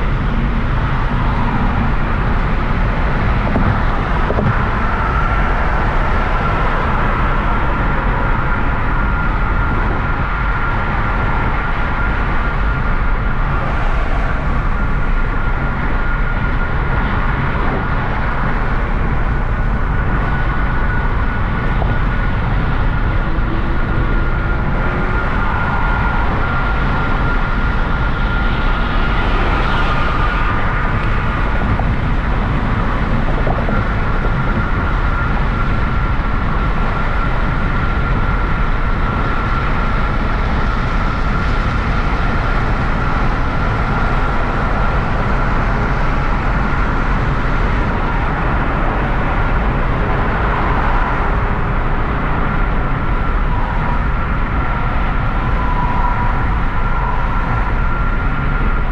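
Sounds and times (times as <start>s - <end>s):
car engine running: 0.0s - 10.0s
road noise: 0.0s - 58.9s.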